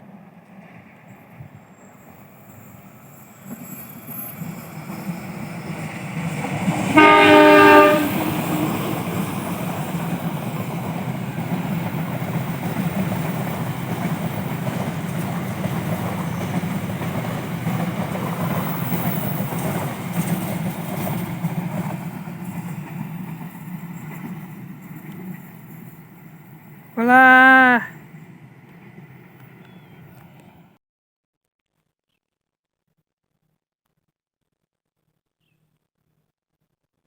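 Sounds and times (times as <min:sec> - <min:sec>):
train rumbling past: 0:00.0 - 0:30.8
train horn: 0:06.9 - 0:08.9, 0:27.0 - 0:28.0.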